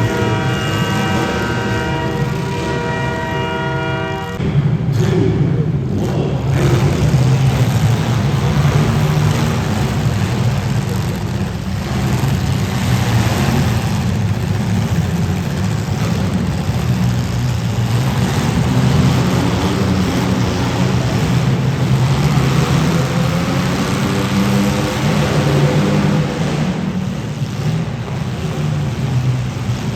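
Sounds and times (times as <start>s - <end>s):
car engines revving: 0.0s - 29.9s.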